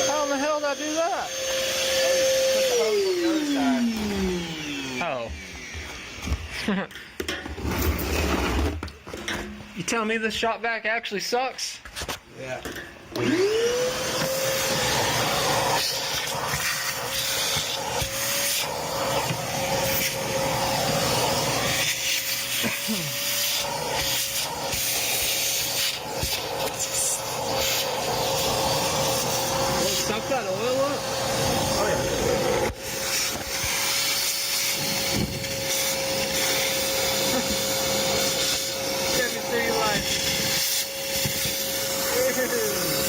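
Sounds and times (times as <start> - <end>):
shop vac motor whine: 0.0 - 6.7, 13.1 - 43.0
air rushing through hose: 15.8 - 42.9.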